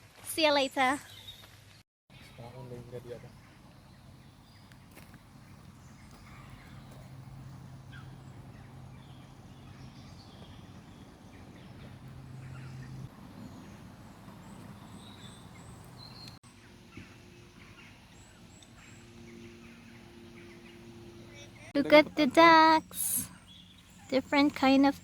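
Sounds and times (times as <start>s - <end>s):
low hum: 2.1s - 16.4s
birds chirping: 2.1s - 25.0s.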